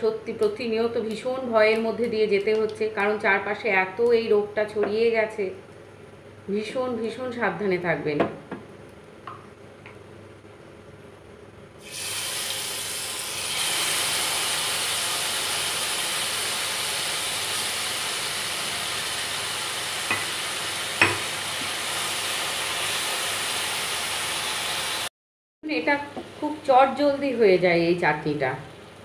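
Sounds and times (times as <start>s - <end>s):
fruit pulp sizzling in oil: 11.8s - 25.1s
spatula knocking on pan: 20.1s - 20.4s, 21.0s - 21.7s.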